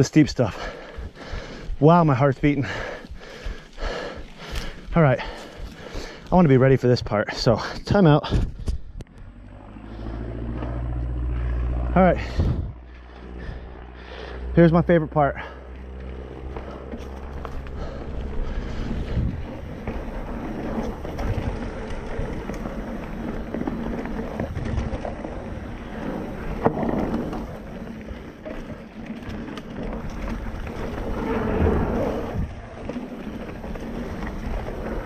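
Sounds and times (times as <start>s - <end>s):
bike tyres rumbling over ground: 0.0s - 35.0s
wind rushing over microphone: 7.9s - 13.6s, 17.2s - 27.8s, 29.8s - 35.0s.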